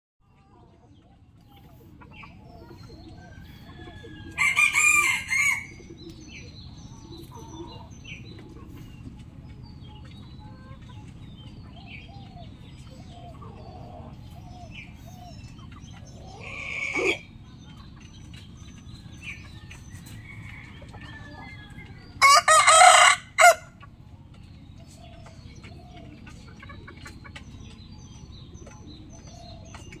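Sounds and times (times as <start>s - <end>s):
rooster crowing: 3.9s - 5.7s, 22.2s - 23.7s.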